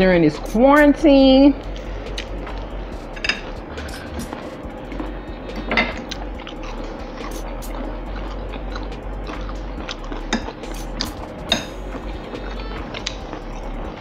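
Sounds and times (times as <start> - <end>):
steady low hum: 0.0 - 14.0
wet chewing and mouth clicks: 1.6 - 2.7, 4.0 - 14.0.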